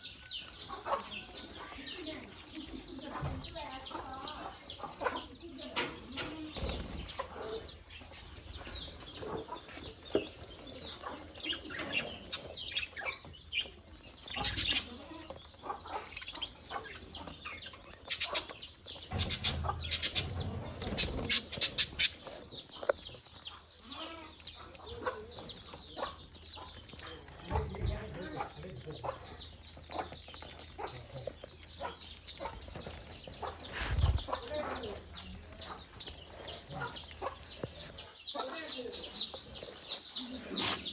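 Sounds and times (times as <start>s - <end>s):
budgerigars chattering and chirping: 0.0s - 40.9s
sharp bird calls: 8.6s - 26.9s.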